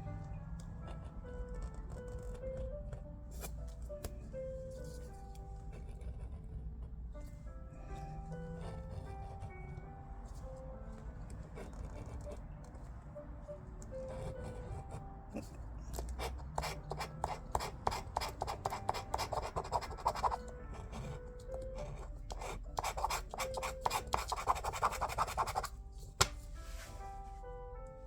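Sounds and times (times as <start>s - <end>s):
faint background music: 0.0s - 28.0s
scratch card being scratched: 15.4s - 20.5s, 22.3s - 25.7s.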